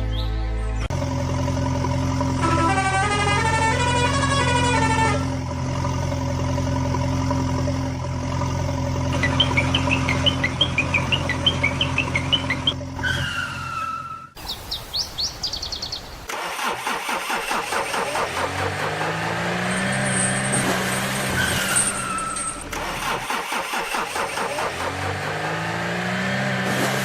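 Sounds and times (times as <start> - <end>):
birds chirping: 0.0 - 1.0, 9.1 - 13.0, 14.4 - 16.3
steady engine hum: 0.0 - 27.0.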